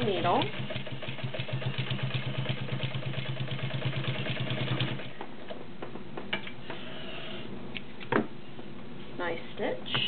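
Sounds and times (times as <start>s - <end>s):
sewing machine stitching: 0.0s - 5.1s.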